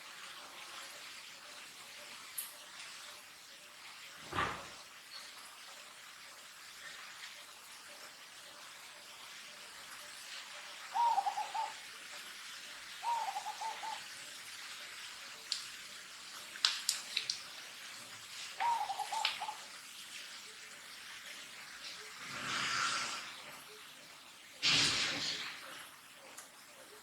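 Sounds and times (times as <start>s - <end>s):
bird hooting calls: 10.9s - 11.8s, 13.0s - 14.1s, 18.6s - 19.7s.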